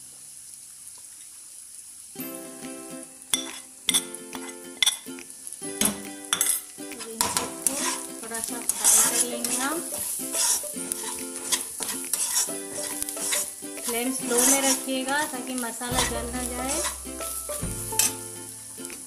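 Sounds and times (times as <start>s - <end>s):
frying hiss: 0.0s - 19.0s
light background music with plucked notes: 2.2s - 19.0s
spatula scraping a pan: 7.2s - 15.3s, 16.0s - 18.3s.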